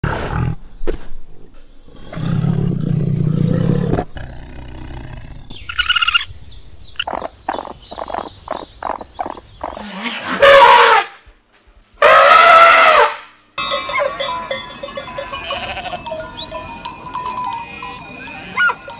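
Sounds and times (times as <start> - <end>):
tiger growling: 1.3 - 5.6.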